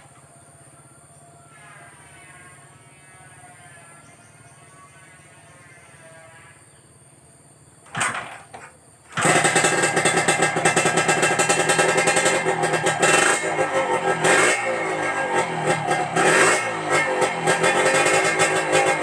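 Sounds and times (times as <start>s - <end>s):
two-stroke motorcycle engine running: 7.9s - 19.0s.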